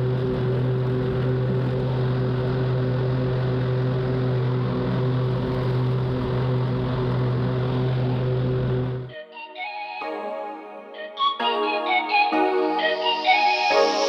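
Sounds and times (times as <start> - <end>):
electronic music: 10.0 - 14.0.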